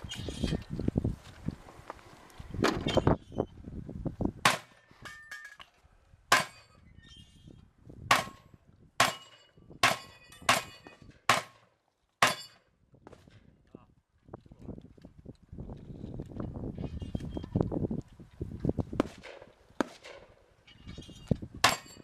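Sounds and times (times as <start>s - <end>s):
shotgun shots: 9.0s - 12.5s, 19.0s - 20.4s.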